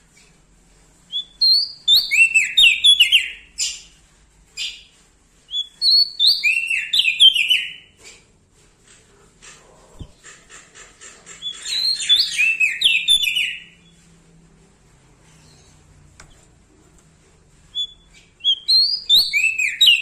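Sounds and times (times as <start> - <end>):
songbird whistling and chipping: 1.1 - 3.9, 4.6 - 4.9, 5.5 - 8.0, 11.4 - 13.9, 17.7 - 20.0.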